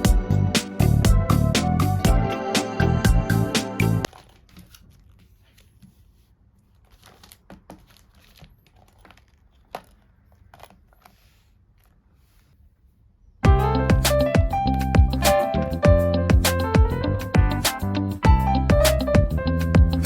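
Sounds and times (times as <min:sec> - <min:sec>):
piano music: 0:00.0 - 0:04.1, 0:13.4 - 0:20.0
plastic packaging crinkling: 0:04.1 - 0:12.5.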